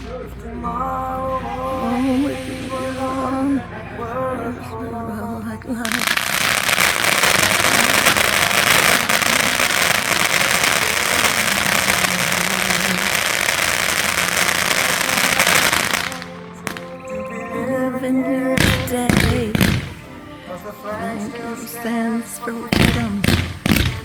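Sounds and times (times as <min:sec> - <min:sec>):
fireworks crackling: 0:00.0 - 0:24.0.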